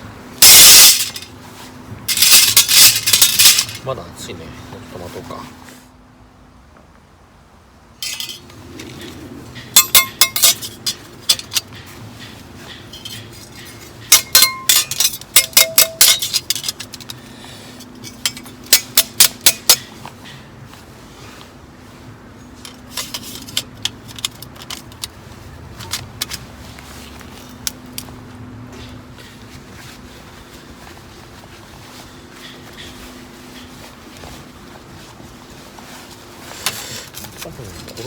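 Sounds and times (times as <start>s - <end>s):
metal cookware clinking: 0.4s - 1.3s, 2.1s - 3.8s, 8.0s - 8.5s, 9.8s - 11.6s, 12.9s - 17.1s.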